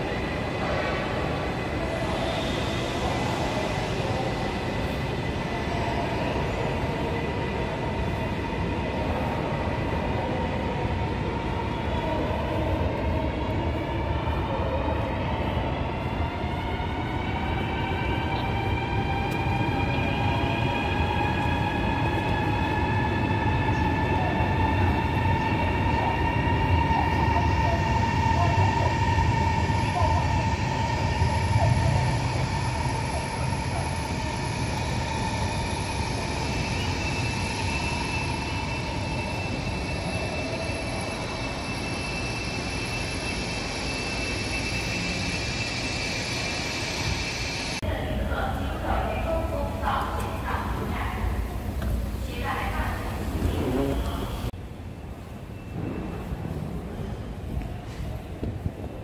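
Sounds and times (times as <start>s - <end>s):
electric train whine: 0.0s - 59.0s
train low rumble: 0.0s - 59.0s.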